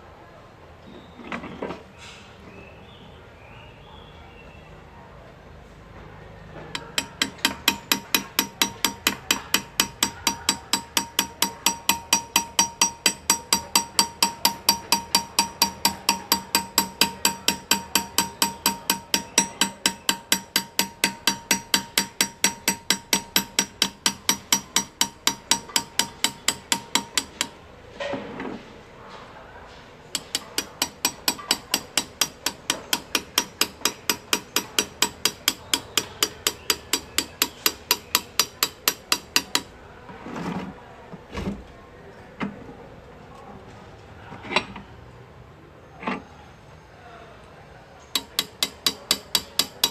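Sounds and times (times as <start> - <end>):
hammer tapping metal: 6.7 - 27.7, 30.1 - 39.8, 48.2 - 49.9.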